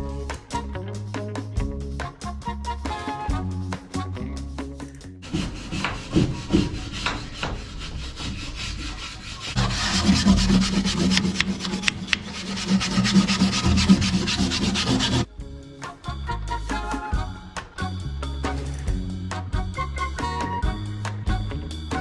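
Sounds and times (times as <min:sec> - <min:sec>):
scrubbing and scraping on metal: 0:05.2 - 0:15.3.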